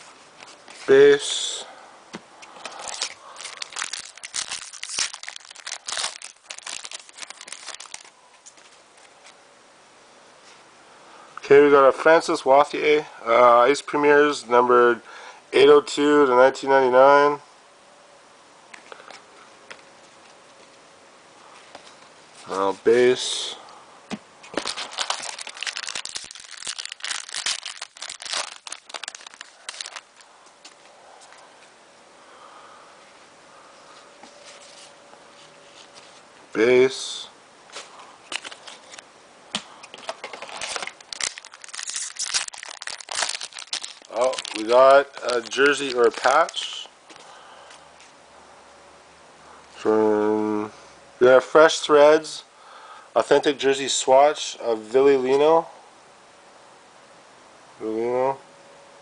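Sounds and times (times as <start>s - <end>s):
cards being handled: 2.4s - 9.4s, 24.1s - 31.4s, 37.7s - 47.2s
foil wrapper crinkling: 2.6s - 9.4s, 24.4s - 31.4s, 37.8s - 47.2s.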